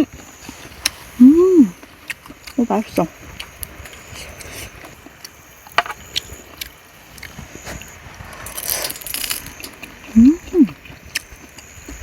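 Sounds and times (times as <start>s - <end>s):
soft rustle: 0.1s - 12.0s
person humming mm-mm: 1.2s - 1.8s, 10.1s - 10.8s.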